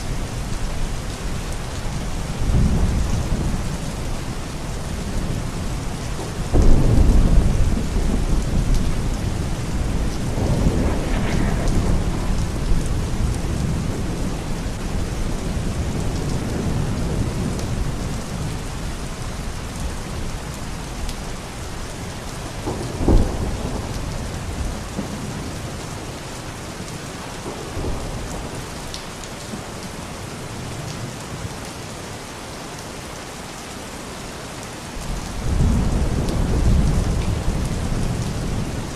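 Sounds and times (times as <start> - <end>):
steady rain: 0.0 - 38.9
thunder: 6.2 - 18.6, 22.5 - 25.8, 27.4 - 29.0, 35.0 - 38.9.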